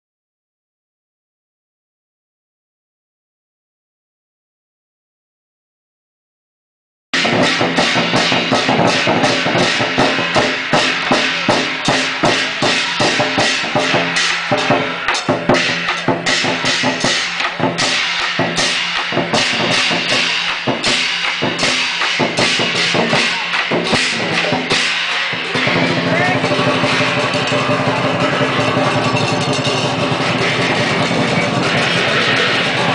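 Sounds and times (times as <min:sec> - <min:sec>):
fast drum and percussion music: 0:07.2 - 0:32.9.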